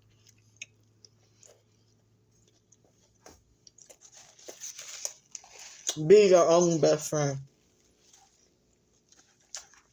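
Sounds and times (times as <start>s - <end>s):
chewing sounds: 0.0s - 6.0s, 8.1s - 9.9s.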